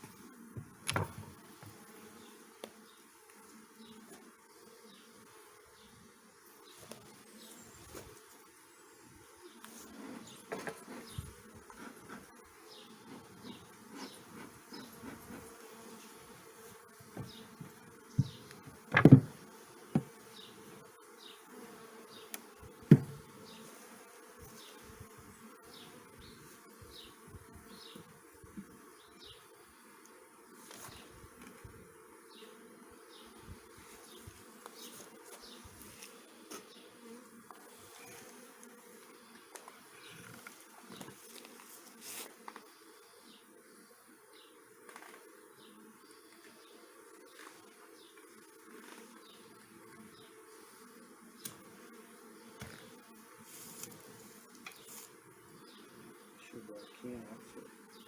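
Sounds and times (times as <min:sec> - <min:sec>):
honey bees buzzing: 0:00.0 - 0:58.0
sharp knocks: 0:17.2 - 0:20.1, 0:22.9 - 0:23.2.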